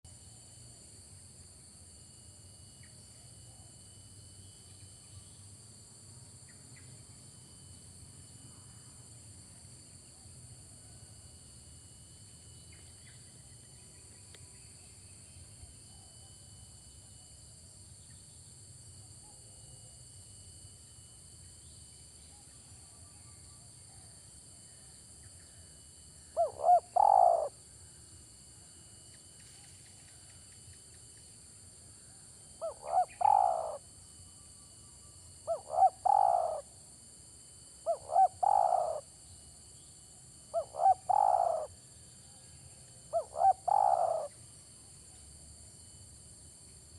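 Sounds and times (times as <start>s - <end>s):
dove cooing: 26.4s - 27.5s, 32.6s - 33.8s, 35.4s - 36.6s, 37.9s - 39.0s, 40.5s - 41.7s, 43.1s - 44.3s.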